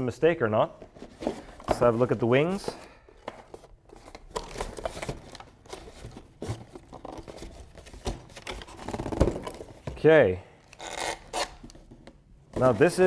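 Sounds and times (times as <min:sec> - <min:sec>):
packaging rustling and crinkling: 0:00.9 - 0:09.8.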